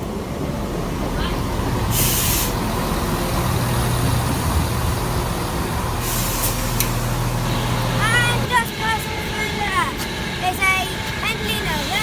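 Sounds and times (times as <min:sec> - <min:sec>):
diesel train engine drone: 0:00.0 - 0:12.0
short hisses of air: 0:01.9 - 0:02.6, 0:06.0 - 0:06.9.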